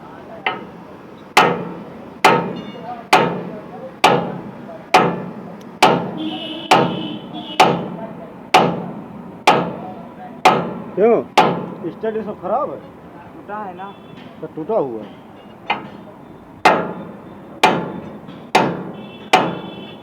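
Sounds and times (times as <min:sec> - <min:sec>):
hammer striking metal: 0:00.5 - 0:00.8, 0:01.4 - 0:12.0, 0:15.0 - 0:19.9.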